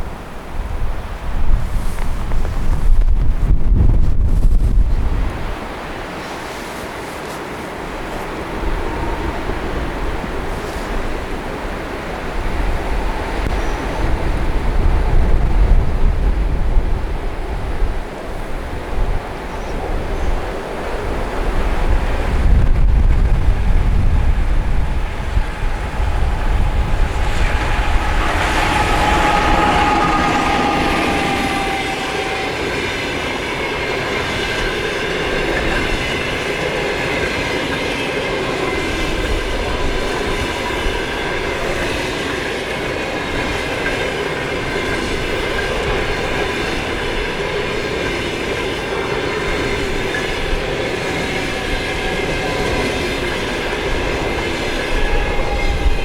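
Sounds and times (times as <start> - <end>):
train wheels on rails: 0.0 - 56.0
wind buffeting microphone: 0.0 - 56.0
wheels squealing: 23.8 - 36.8.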